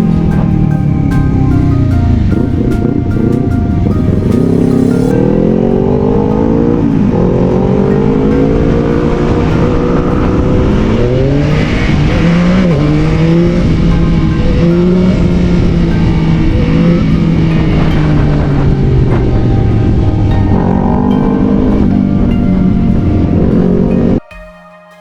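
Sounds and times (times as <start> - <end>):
motorcycle engine accelerating: 0.0 - 24.2.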